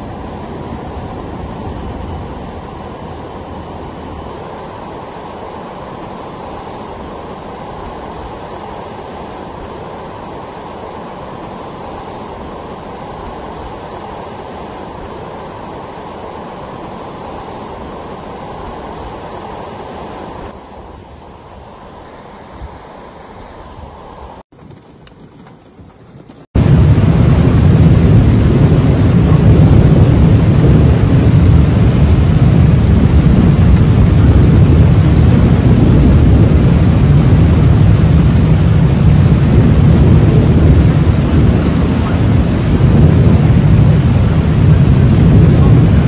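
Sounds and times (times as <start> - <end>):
torrential rainstorm: 0.0 - 46.0
deep rumble: 24.6 - 46.0.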